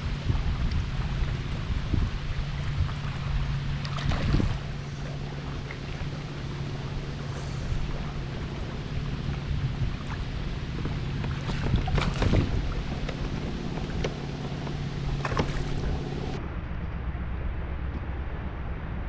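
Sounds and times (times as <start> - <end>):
small motor humming: 4.4 - 16.4
gear knocking against hull: 8.6 - 16.4.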